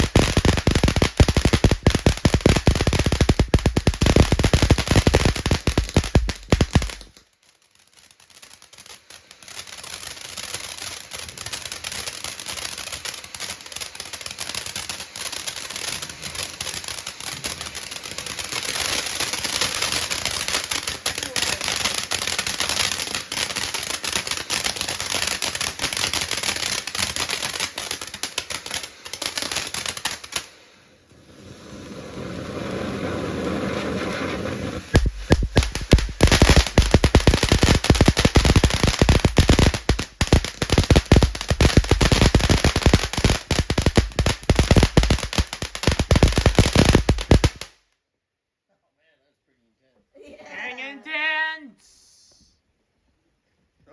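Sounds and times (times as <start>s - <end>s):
fireworks crackling: 0.0s - 47.8s
bangs with deep thumps: 35.0s - 37.0s.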